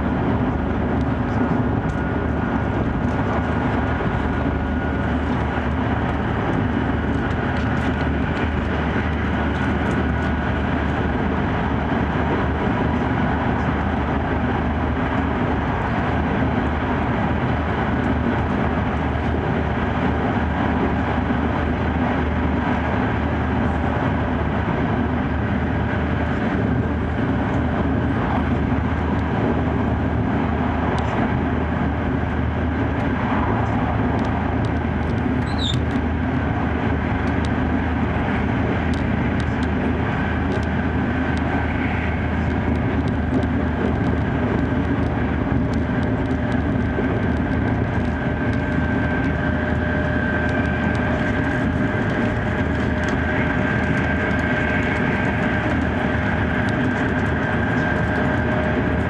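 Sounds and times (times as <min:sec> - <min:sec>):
train rushing rumble: 0:00.0 - 0:59.0
brief high squeak: 0:35.4 - 0:35.8.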